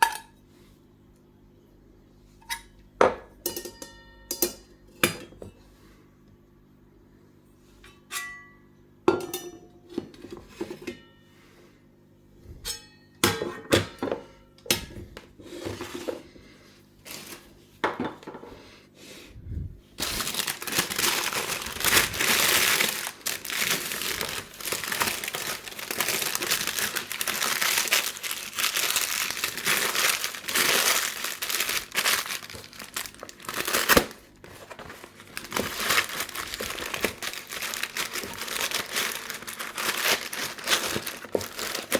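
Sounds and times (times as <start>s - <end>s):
packaging crinkling: 20.0s - 41.9s.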